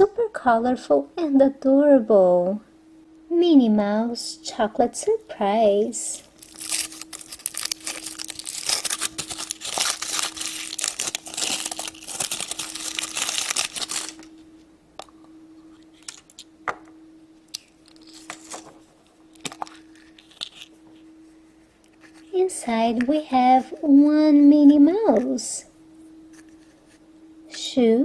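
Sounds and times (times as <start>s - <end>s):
faint steady hum: 0.0s - 28.0s
wrapper crumpled and torn: 6.2s - 14.4s, 17.5s - 20.8s.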